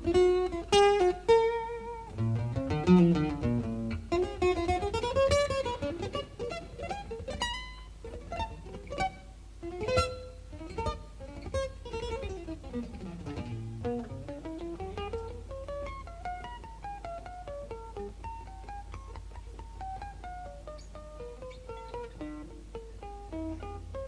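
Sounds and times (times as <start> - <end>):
acoustic guitar plucked notes: 0.0 - 24.0.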